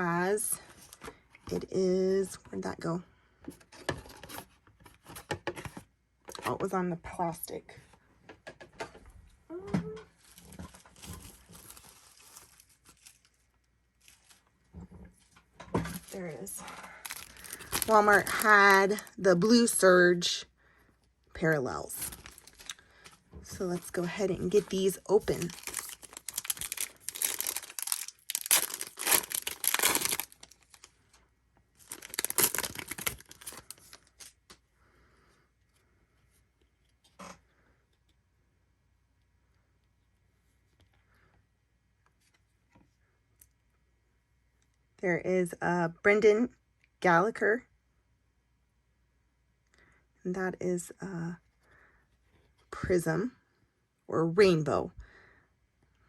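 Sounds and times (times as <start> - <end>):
plastic wrap rustling: 10.2 - 15.3, 15.9 - 19.2, 22.0 - 31.0, 31.8 - 34.3
packaging tearing and crinkling: 17.0 - 19.0, 22.0 - 22.8, 24.8 - 30.9, 31.8 - 34.3.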